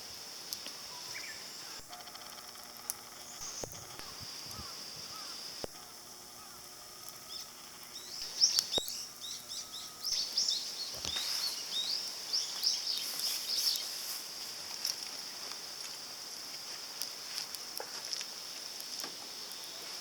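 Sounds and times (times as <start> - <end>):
high-pitched outdoor hiss: 0.0 - 20.0
bird chirping: 0.9 - 1.8, 3.0 - 5.5, 6.3 - 14.0
sharp clicks: 1.8 - 11.2.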